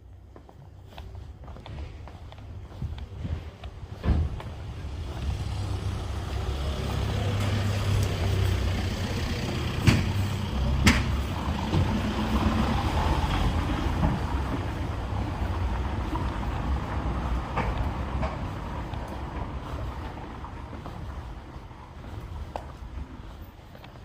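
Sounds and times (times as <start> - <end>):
heavy vehicle engine rumble: 0.0 - 24.0
sharp knocks: 10.8 - 11.9.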